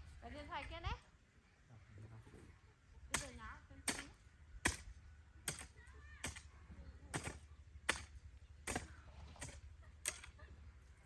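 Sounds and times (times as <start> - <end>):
hand tool striking hard: 3.2 - 4.9, 5.5 - 6.4, 7.1 - 10.3.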